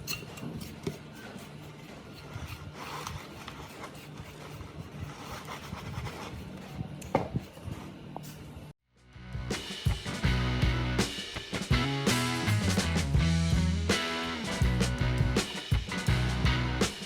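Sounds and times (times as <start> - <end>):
music: 9.0 - 17.0.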